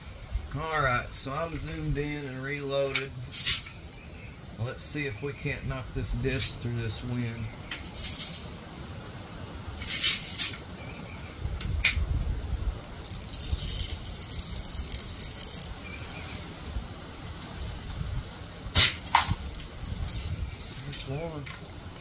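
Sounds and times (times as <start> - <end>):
steady hiss: 0.0 - 22.0
wind on microphone: 10.7 - 22.0
air rifle clicks: 18.8 - 19.8.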